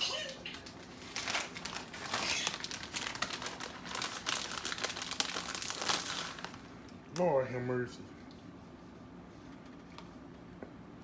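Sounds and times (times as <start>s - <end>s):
plastic packaging crinkling: 0.7s - 6.8s.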